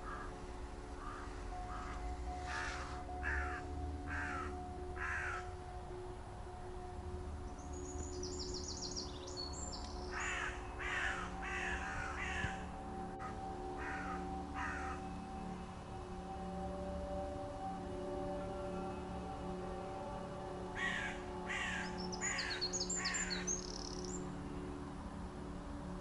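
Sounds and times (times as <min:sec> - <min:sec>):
crow cawing: 0:00.0 - 0:00.3, 0:01.0 - 0:05.5, 0:10.1 - 0:12.6, 0:13.2 - 0:15.0, 0:20.8 - 0:23.5
low steady hum: 0:00.0 - 0:26.0.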